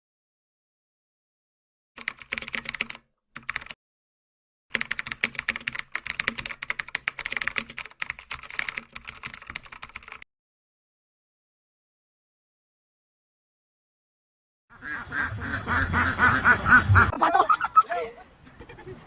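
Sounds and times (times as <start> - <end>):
rapid dense clicking: 4.7 - 10.2.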